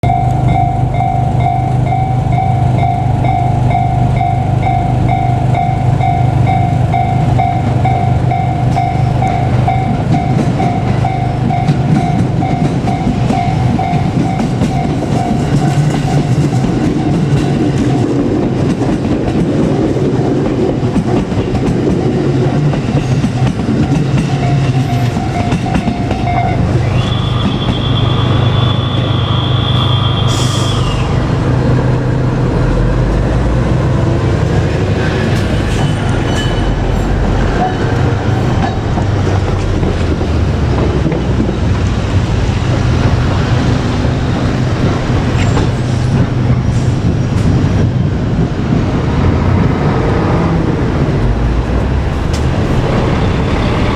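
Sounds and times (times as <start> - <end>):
high steady tone: 0.0 - 15.6
train wheels rumbling on rails: 0.0 - 53.9.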